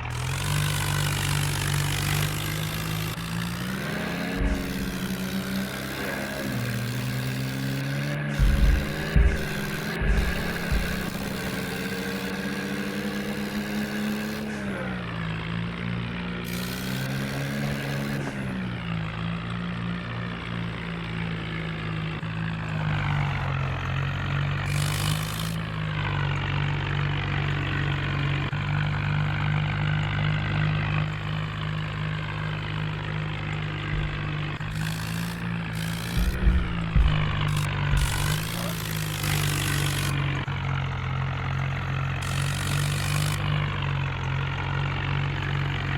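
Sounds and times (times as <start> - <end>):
tractor engine running: 0.0 - 45.9
short knocks: 4.0 - 5.6, 8.3 - 11.8, 33.8 - 40.4.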